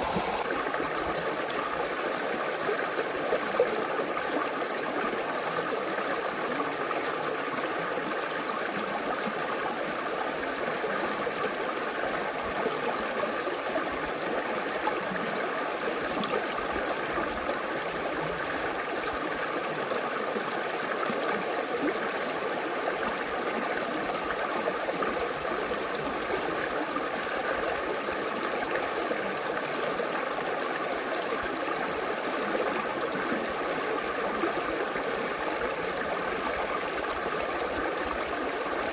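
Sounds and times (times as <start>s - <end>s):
creek water flowing and splashing: 0.0s - 38.9s.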